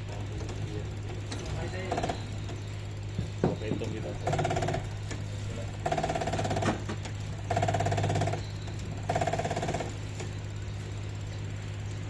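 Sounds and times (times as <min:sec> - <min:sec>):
steady low hum: 0:00.0 - 0:12.0
power tool buzzing bursts: 0:03.9 - 0:10.3.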